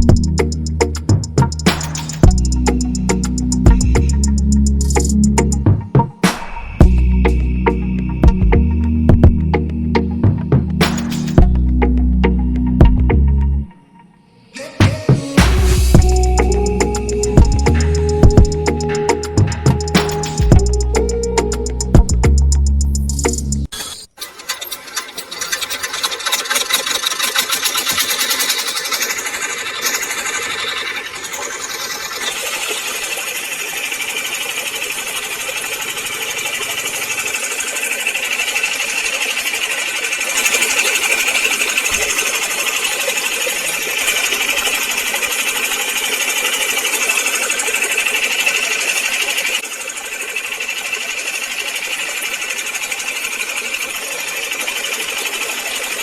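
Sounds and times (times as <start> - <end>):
small high-speed motor buzzing: 24.4 - 56.0.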